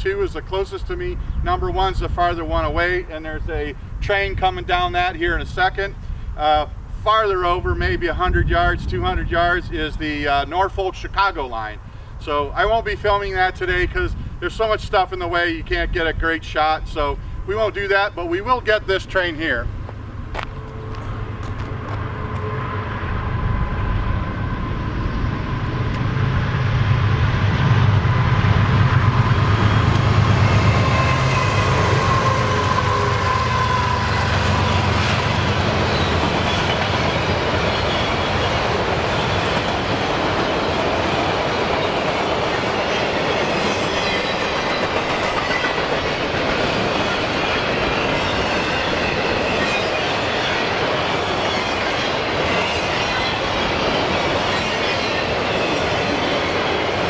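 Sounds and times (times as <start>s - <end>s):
diesel locomotive engine drone: 0.0s - 57.0s
freight cars rumbling and clattering: 0.0s - 57.0s
wheel squeal: 29.2s - 39.8s, 41.8s - 57.0s.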